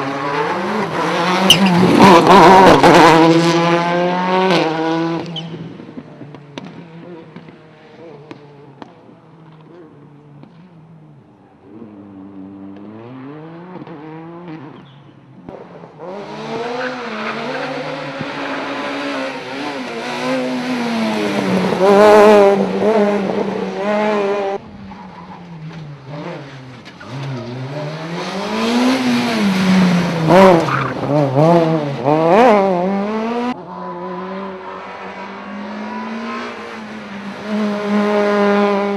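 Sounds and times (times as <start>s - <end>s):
rally car engines revving: 0.0s - 38.9s
tyre squeal: 1.4s - 2.2s.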